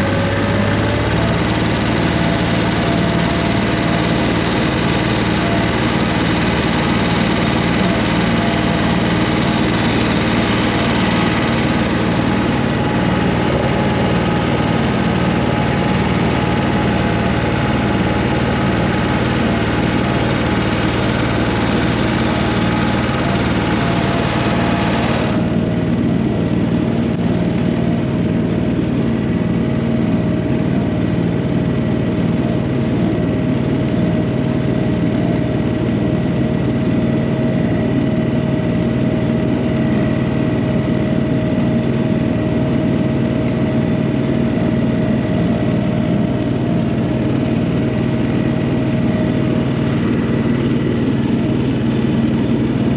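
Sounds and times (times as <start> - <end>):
tractor diesel engine running: 0.0 - 52.9.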